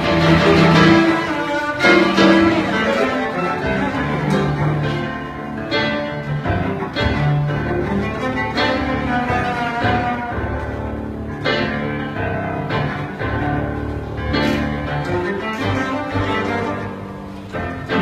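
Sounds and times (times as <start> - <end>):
cello bowing low sustained notes: 0.0 - 11.4.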